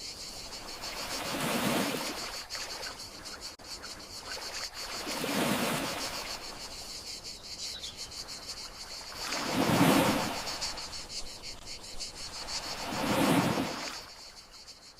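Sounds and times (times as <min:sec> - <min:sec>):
crickets chirring: 0:00.0 - 0:14.9
sea waves washing in: 0:00.5 - 0:03.0, 0:04.4 - 0:06.6, 0:09.0 - 0:11.1, 0:12.3 - 0:14.2.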